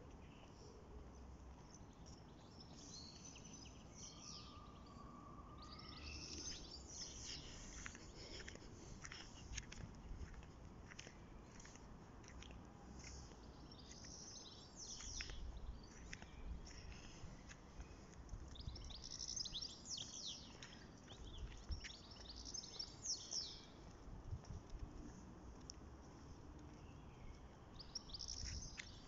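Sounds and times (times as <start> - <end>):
small birds chirping: 0.0 - 24.1, 25.0 - 29.0.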